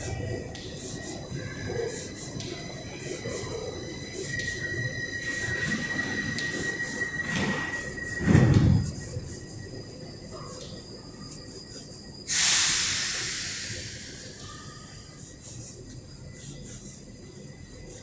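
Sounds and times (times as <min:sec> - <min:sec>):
train high whine: 0:00.0 - 0:11.3, 0:12.0 - 0:15.3
hiss of air: 0:12.3 - 0:14.8.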